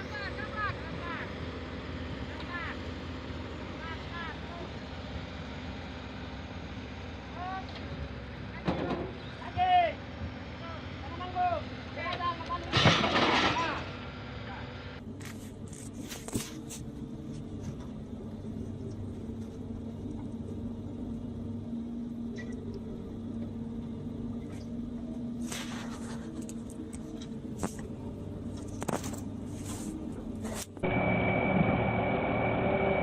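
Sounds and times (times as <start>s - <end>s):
engine humming: 0.0s - 33.0s
noisy machine with high whine: 15.7s - 33.0s.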